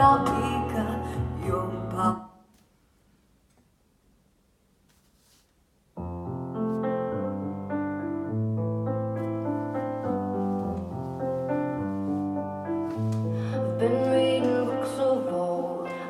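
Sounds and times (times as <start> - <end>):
piano chords: 0.0 - 2.2, 6.0 - 16.0.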